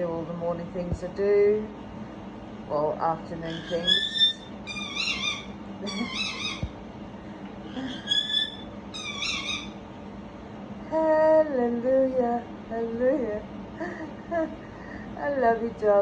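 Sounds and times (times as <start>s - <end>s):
low wavering voice: 2.7s - 4.1s, 10.8s - 13.5s
parrot squeaking calls: 3.4s - 6.8s, 7.6s - 9.8s.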